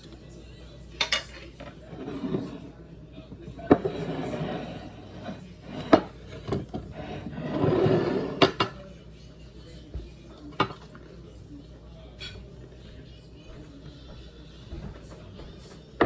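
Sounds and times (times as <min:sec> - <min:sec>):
cutlery and dishes clinking: 0:00.0 - 0:00.3, 0:00.9 - 0:02.7, 0:03.4 - 0:08.9, 0:10.4 - 0:11.0, 0:12.1 - 0:12.6.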